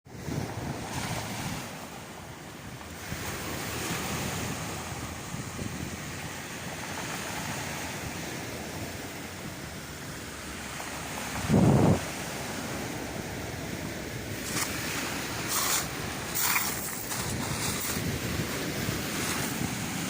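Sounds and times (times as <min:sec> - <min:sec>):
waves washing over stony shore: 0:00.1 - 0:20.0
stones rattling in water: 0:15.5 - 0:18.0.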